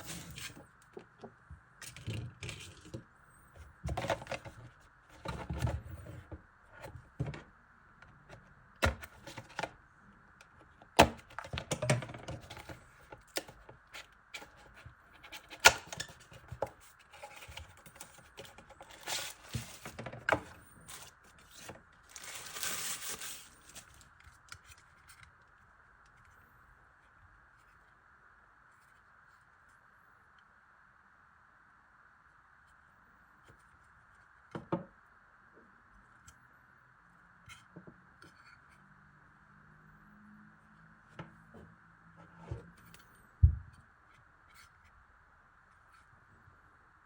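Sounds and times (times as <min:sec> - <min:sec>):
packaging rustling: 0:20.7 - 0:24.1.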